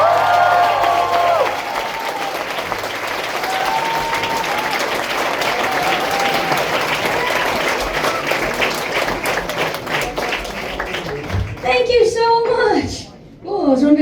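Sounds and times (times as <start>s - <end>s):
people whooping: 0.0s - 8.6s
audience clapping: 0.0s - 12.2s.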